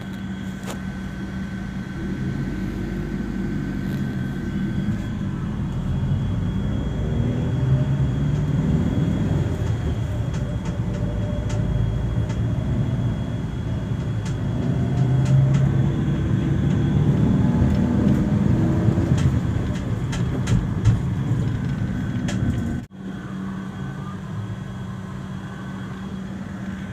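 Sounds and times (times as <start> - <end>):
steady even hum: 0.0 - 26.9
vehicle engine running: 0.0 - 26.9.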